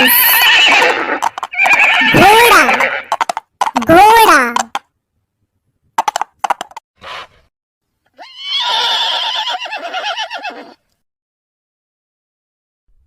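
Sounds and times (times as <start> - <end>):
horse neighing: 0.0 - 3.4, 8.1 - 10.8
horse hoof clops: 0.8 - 4.8, 6.0 - 6.8.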